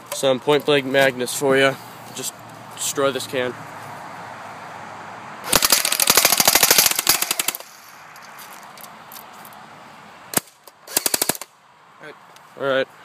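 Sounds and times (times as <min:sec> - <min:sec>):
airsoft rifle full-auto burst: 0:05.5 - 0:07.6, 0:10.4 - 0:11.5.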